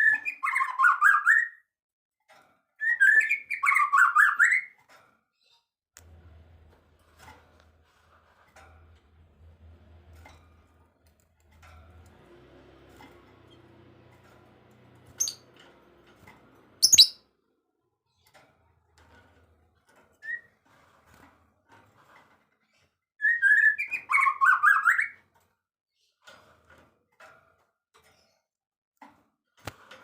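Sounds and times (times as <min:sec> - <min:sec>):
songbird singing: 0:16.8 - 0:17.2.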